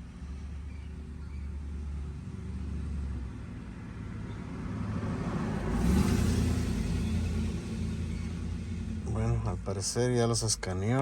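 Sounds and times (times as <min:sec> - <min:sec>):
vehicle engine running: 0:05.2 - 0:11.0.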